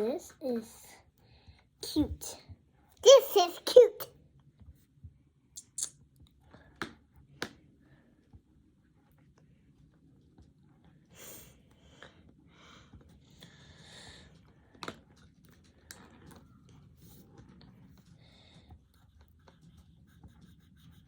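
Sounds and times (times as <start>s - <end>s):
pencils scratching on paper: 17.0s - 21.0s.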